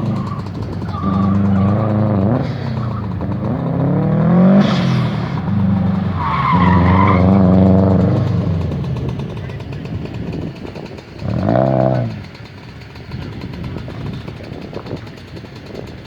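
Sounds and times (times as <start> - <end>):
tires squealing: 0.0 - 12.4
car engine revving: 0.0 - 14.4.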